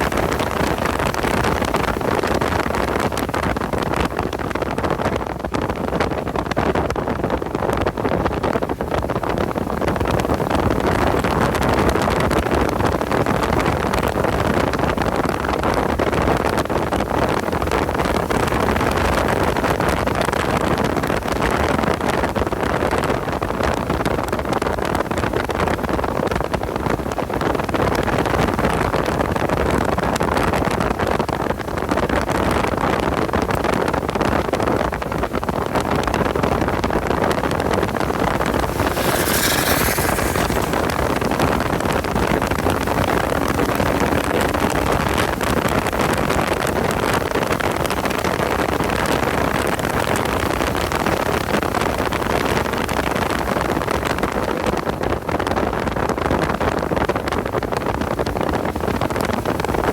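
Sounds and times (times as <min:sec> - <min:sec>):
wind and road noise: 0:00.0 - 0:59.9
car engine running hard: 0:38.0 - 0:47.2.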